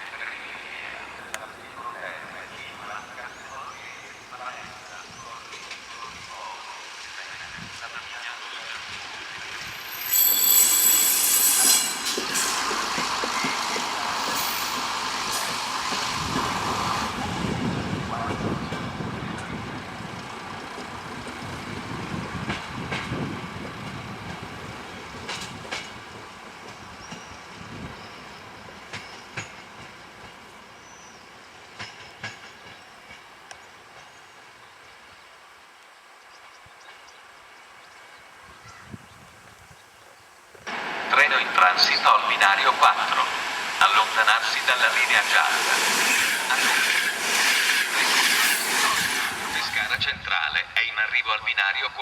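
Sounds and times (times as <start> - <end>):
train rumble: 0.0 - 35.6, 40.7 - 50.8
train wheel squeal: 9.5 - 15.6, 45.9 - 49.9.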